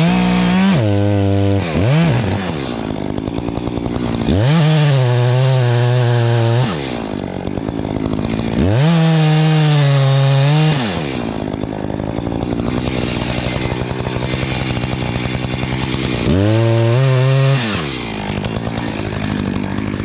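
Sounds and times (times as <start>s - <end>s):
chainsaw idling and revving: 0.0s - 20.0s.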